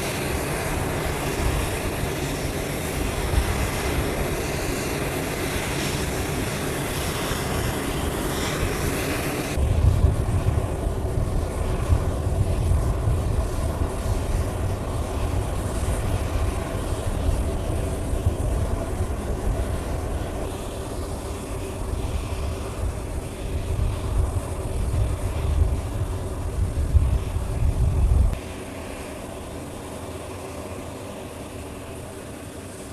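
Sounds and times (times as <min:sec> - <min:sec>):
deep jet engine rumble: 0:00.0 - 0:32.9
jet engines hissing: 0:00.0 - 0:32.9.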